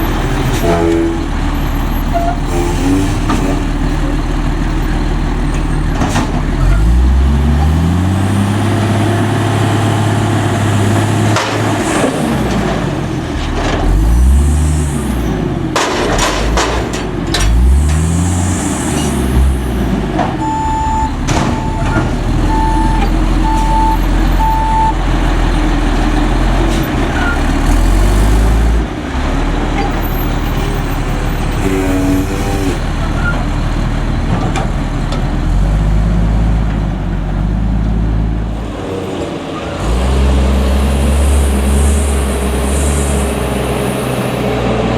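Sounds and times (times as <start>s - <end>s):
diesel engine revving: 0.0s - 44.9s
reversing beeps: 20.4s - 25.0s.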